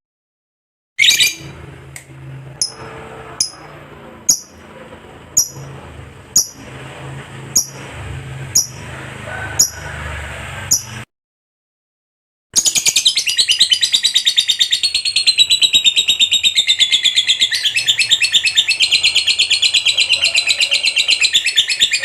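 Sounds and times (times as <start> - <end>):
lovebird harsh call: 12.6 - 22.0.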